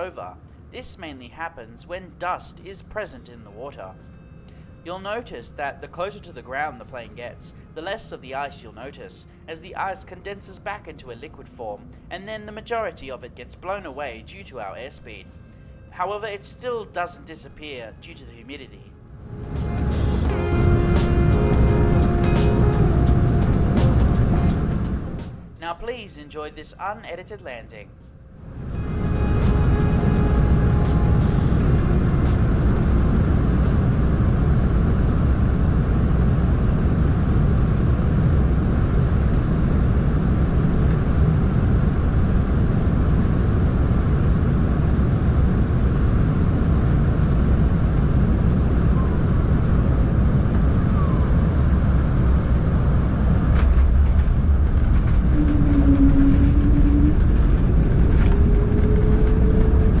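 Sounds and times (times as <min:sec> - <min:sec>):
rising engine tone: 0:19.0 - 0:25.6, 0:28.4 - 1:00.0
airliner cabin rumble: 0:19.1 - 0:25.9, 0:28.4 - 1:00.0.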